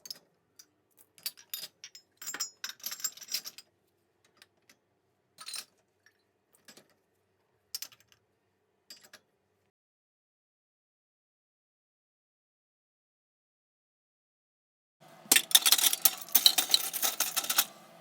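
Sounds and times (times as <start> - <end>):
dishes and glasses clinking: 15.3 - 17.8.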